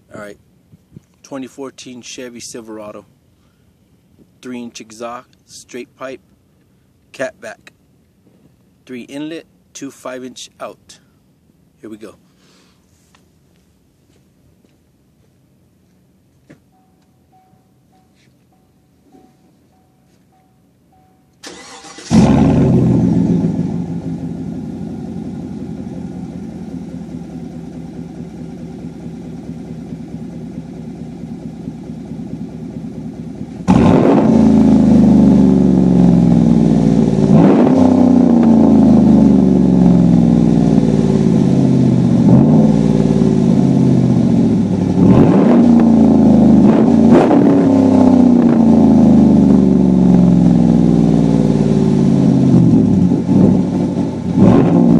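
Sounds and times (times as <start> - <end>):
truck engine idling and revving: 21.4 - 54.9.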